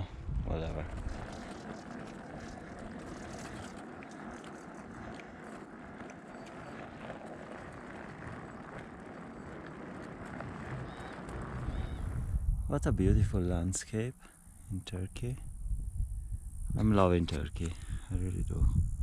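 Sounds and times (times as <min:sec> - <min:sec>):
bicycle rolling on road: 0:00.4 - 0:13.5.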